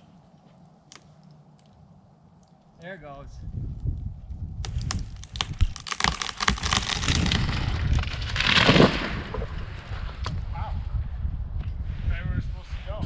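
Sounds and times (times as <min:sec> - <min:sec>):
wood cracking and snapping: 0:03.8 - 0:09.5
tree crashing to the ground: 0:04.6 - 0:10.3.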